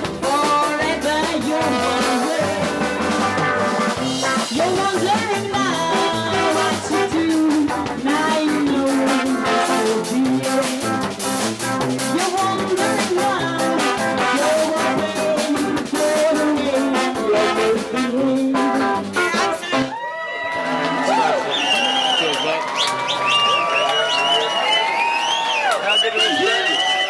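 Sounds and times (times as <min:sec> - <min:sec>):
drum kit beat: 0:00.0 - 0:20.0
funk band playing: 0:00.0 - 0:21.6.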